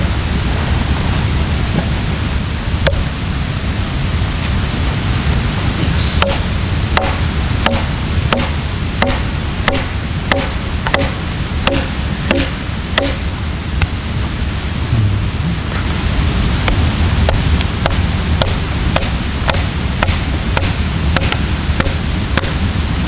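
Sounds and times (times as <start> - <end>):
low rushing noise: 0.0 - 23.0
axe chopping into a log: 7.0 - 13.2, 17.9 - 22.6.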